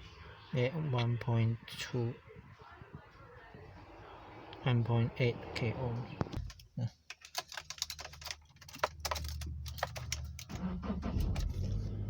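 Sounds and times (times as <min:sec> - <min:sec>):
small plastic clicks and rattles: 0:06.4 - 0:10.5.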